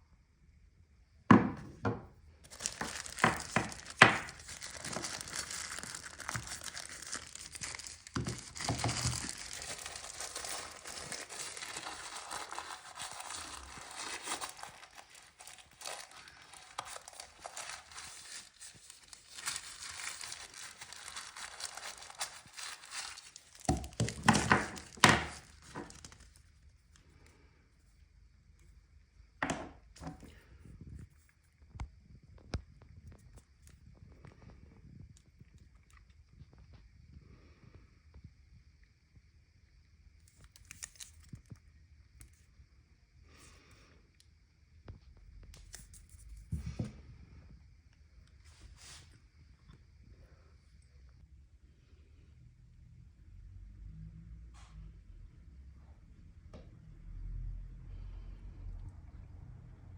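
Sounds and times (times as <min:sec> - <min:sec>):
packaging crinkling and rustling: 0:02.4 - 0:26.6, 0:40.3 - 0:41.6.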